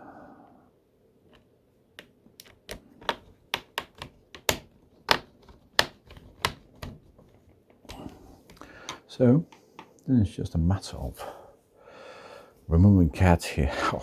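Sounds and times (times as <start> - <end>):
clicks on plastic laptop casing: 1.3 - 9.9.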